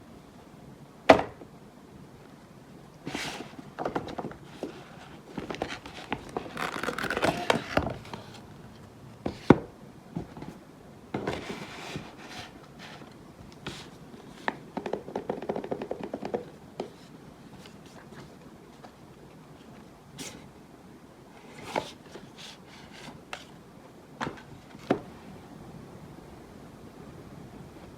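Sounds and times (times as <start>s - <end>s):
packaging rustling and scraping: 3.1s - 9.6s, 11.2s - 14.6s.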